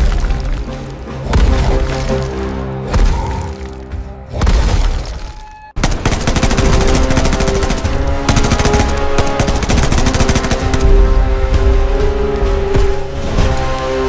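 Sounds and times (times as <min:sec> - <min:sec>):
rapid rattling sharp hits: 0:05.8 - 0:11.0.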